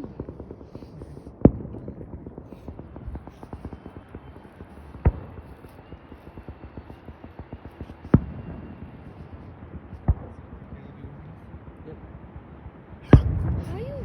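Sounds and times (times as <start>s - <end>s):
firework booms: 0.0s - 6.7s, 7.9s - 11.1s, 12.7s - 14.0s
firework pops and crackles: 0.0s - 11.0s, 12.6s - 14.0s.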